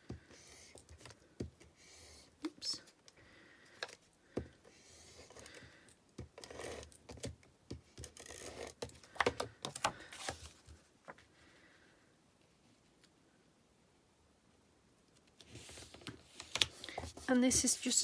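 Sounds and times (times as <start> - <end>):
paper and card rustling and tapping: 7.1 - 11.2, 15.4 - 18.0.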